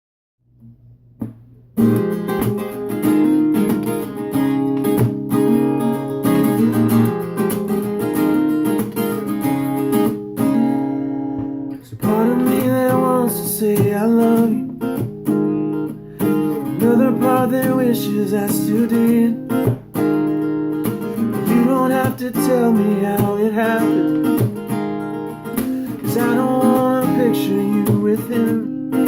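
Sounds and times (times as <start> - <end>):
acoustic guitar strumming: 1.2 - 29.0
person singing: 12.0 - 14.7, 16.5 - 19.8, 21.3 - 24.4, 25.8 - 29.0.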